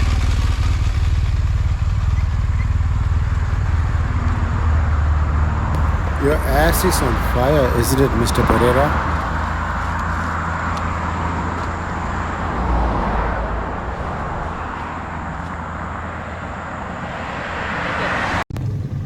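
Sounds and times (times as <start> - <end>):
motorcycle engine drone: 5.8 - 17.8.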